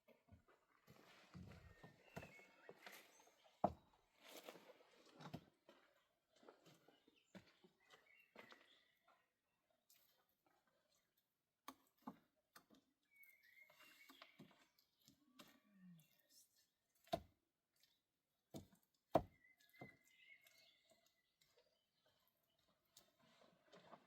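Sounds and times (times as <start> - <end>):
faint rustling and scraping: 0.3 - 6.9.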